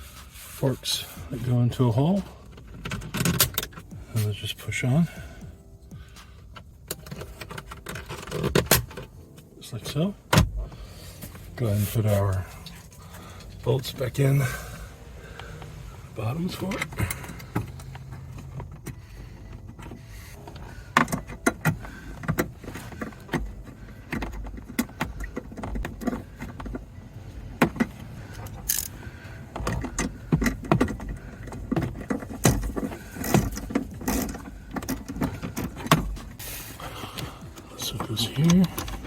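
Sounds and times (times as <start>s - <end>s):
clicks and rattles of hand tools: 29.6s - 36.4s.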